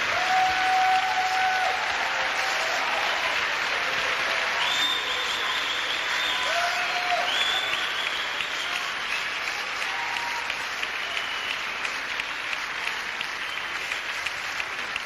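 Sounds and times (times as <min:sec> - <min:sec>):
audience applauding: 0:00.0 - 0:15.0
whistles from audience: 0:04.5 - 0:11.9, 0:13.4 - 0:14.0.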